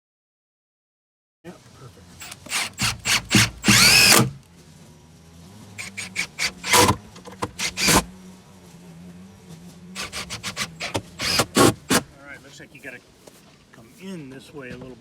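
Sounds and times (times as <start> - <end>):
power drill whirring: 2.2 - 4.4, 5.8 - 8.1, 10.0 - 12.1.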